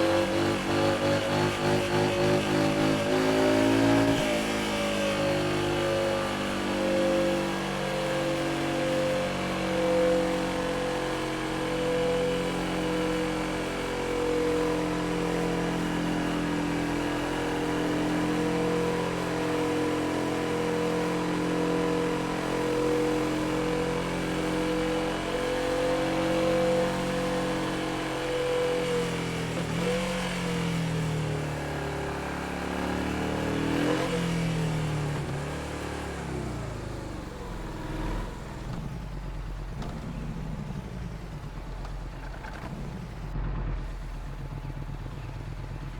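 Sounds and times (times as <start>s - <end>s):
motorcycle engine running: 33.9s - 45.9s.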